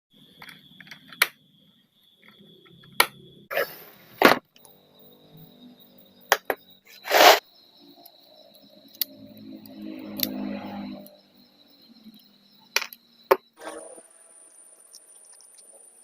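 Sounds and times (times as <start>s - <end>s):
short rasping hiss: 6.9s - 7.4s.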